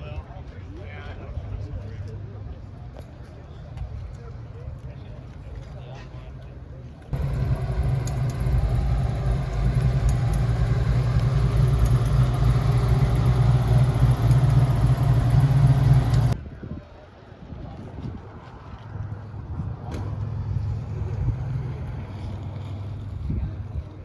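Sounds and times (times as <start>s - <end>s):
car engine rumbling: 7.1s - 16.4s.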